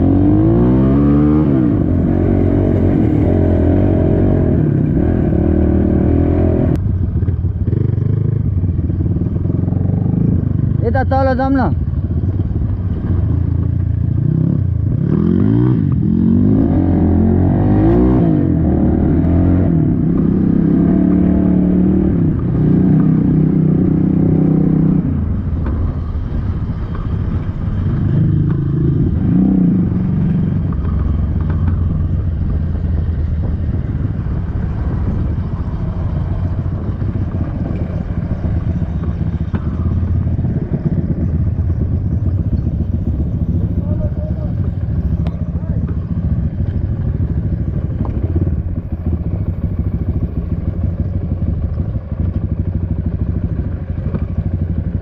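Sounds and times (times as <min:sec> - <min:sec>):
dirt bike engine revving: 0:00.0 - 0:06.8, 0:13.3 - 0:25.1.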